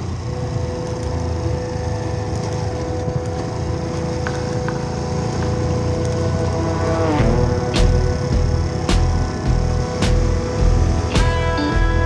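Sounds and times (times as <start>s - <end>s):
road and wind rumble: 0.0s - 12.0s
motorcycle engine running: 2.4s - 12.0s.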